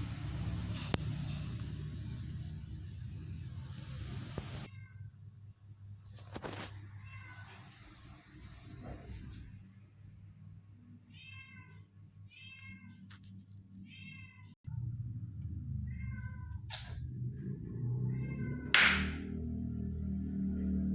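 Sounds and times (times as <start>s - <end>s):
cat meowing: 15.9s - 16.6s.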